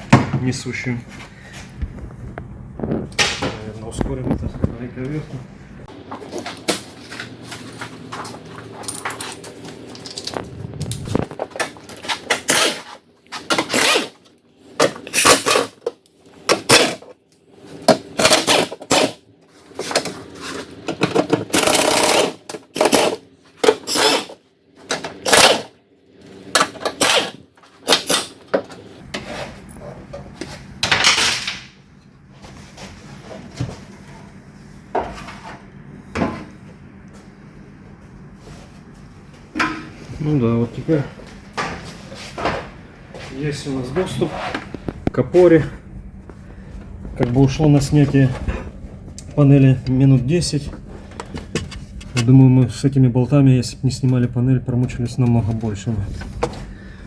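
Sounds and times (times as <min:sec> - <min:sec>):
hand tools clicking and clattering: 0:06.2 - 0:10.4, 0:19.8 - 0:25.7.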